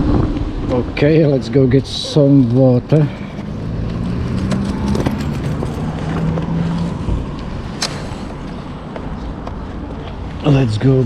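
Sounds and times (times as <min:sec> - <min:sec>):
wind rumble on microphone: 0:00.0 - 0:02.9, 0:03.6 - 0:07.8.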